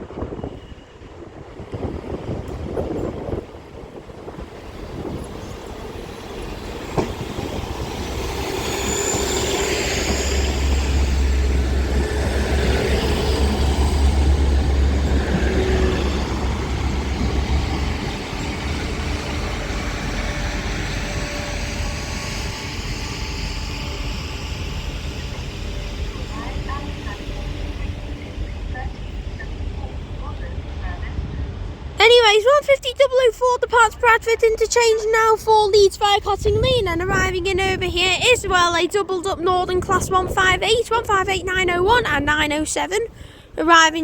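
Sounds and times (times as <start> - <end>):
diesel train engines droning: 0.0 - 44.0
high squeal: 7.6 - 11.4.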